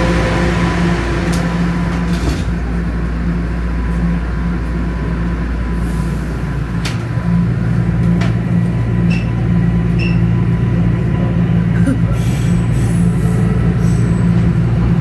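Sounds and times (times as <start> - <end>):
deep motor hum: 0.0 - 5.8
subway train rumble: 0.0 - 15.0.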